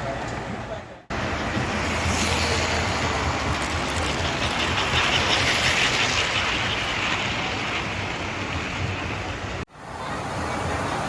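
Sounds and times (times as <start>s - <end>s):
model trains rolling: 1.2s - 9.6s.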